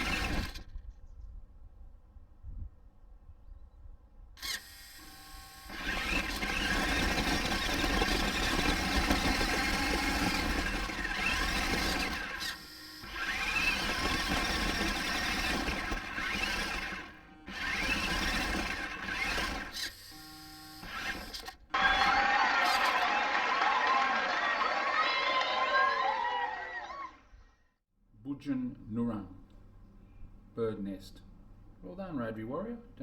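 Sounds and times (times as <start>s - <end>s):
toy car electric motor whining: 0.0s - 0.8s, 4.4s - 23.2s.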